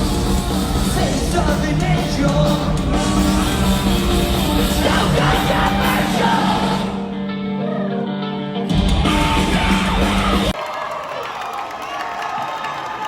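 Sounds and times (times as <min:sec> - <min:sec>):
live rock band playing: 0:00.0 - 0:10.6
person singing: 0:00.0 - 0:10.6.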